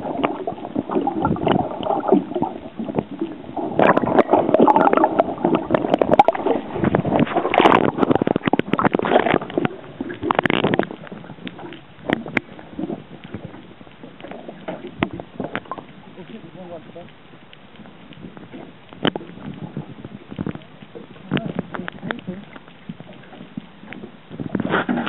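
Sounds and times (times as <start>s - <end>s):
water gurgling and sloshing: 0.0s - 25.0s.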